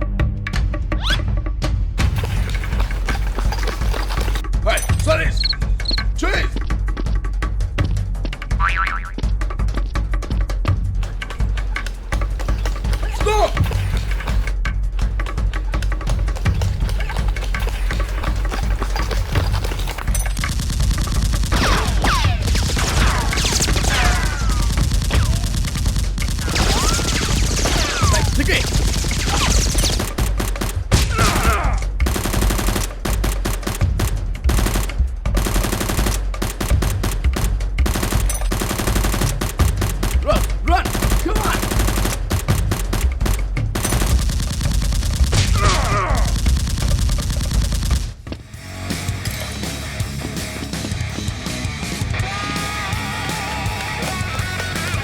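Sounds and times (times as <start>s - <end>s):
person shouting: 13.1s - 13.6s, 31.1s - 31.9s, 40.2s - 41.6s, 45.5s - 46.3s
machine gun bursts: 16.9s - 31.5s, 32.1s - 40.2s, 40.8s - 45.6s, 46.2s - 48.2s
automatic gunfire: 17.1s - 48.2s.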